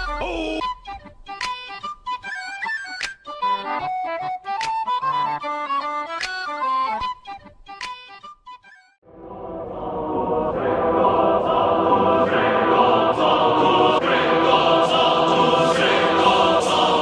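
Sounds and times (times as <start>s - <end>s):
choir singing sustained chords: 9.0s - 17.0s.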